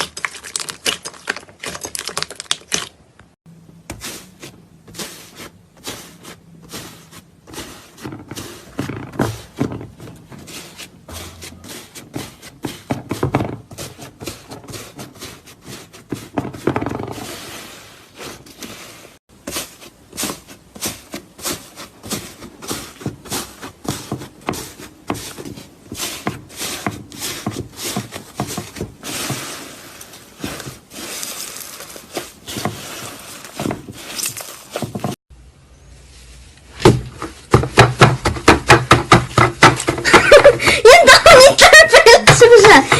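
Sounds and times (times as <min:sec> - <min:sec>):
slime clicking and crackling: 0:00.0 - 0:03.2.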